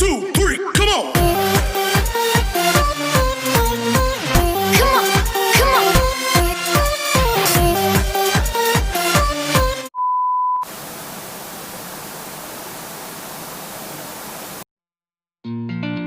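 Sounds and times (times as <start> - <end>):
electronic dance music: 3.7 - 9.8
static hiss: 10.6 - 14.6.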